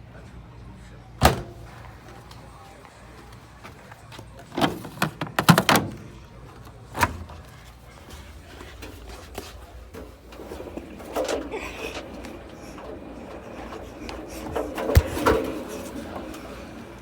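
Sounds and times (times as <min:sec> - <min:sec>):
sharp knocks and clatters: 0:07.0 - 0:17.0.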